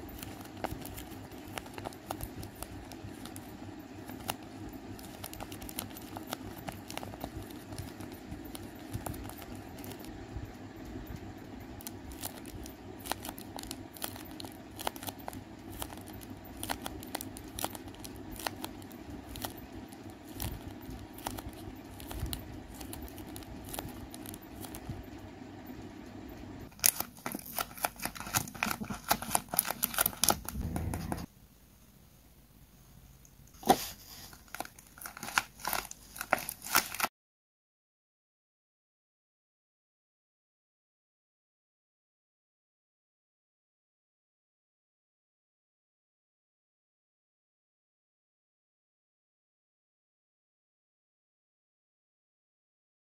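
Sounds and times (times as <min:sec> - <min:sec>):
paper and tape crinkling: 0:00.0 - 0:10.1, 0:11.8 - 0:25.0, 0:26.7 - 0:31.3, 0:33.5 - 0:37.1
steady low hum: 0:00.0 - 0:37.1.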